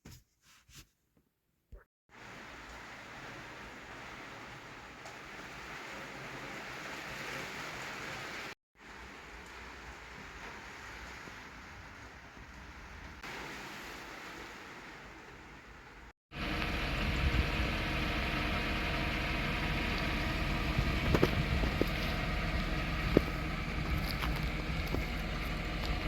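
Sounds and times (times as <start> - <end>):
faint rain hiss: 2.1 - 26.0
car engine running: 16.4 - 26.0.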